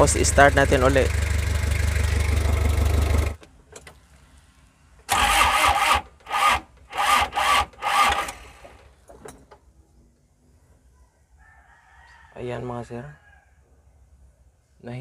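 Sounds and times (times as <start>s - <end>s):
diesel engine running: 0.0s - 3.4s
starter motor cranking: 0.1s - 3.4s, 5.0s - 9.0s.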